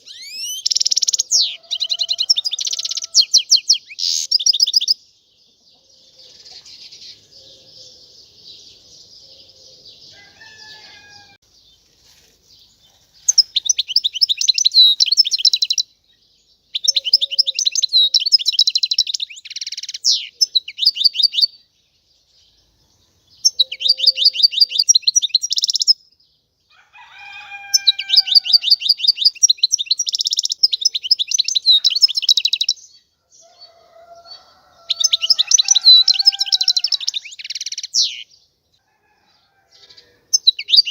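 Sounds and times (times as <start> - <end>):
goldfinch twittering song: 0.0 - 5.0, 12.5 - 21.6, 23.4 - 26.1, 27.6 - 33.0.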